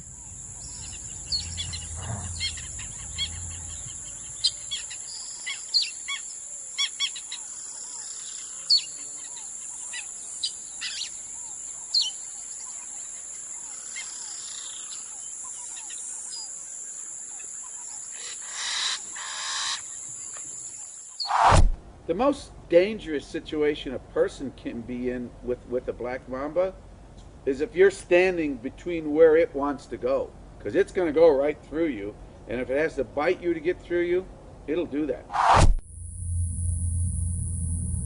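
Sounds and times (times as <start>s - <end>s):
birds chirping: 0.0s - 16.4s
low hum: 0.2s - 4.7s, 35.3s - 38.0s
noisy swell: 35.3s - 38.0s
high-pitched drone: 35.4s - 38.0s.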